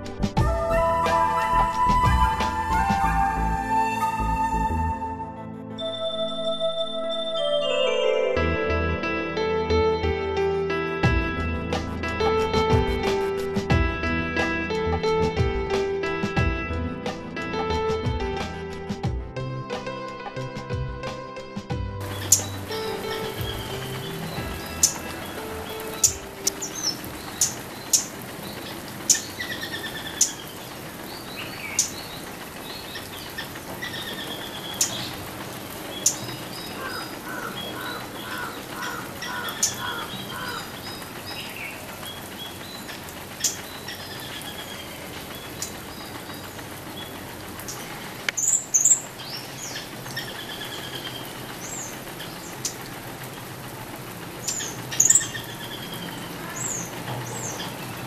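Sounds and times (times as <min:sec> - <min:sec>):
small birds chirping: 0:22.0 - 0:53.3, 0:54.0 - 0:58.0.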